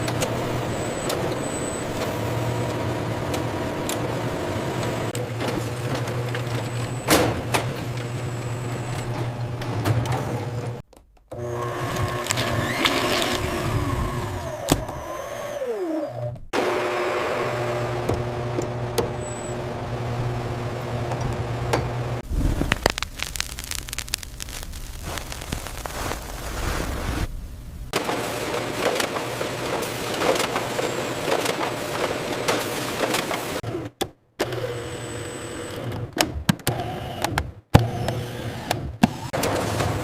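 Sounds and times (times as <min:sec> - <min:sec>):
factory machinery humming: 0:00.0 - 0:22.2
falling whine: 0:22.0 - 0:28.0.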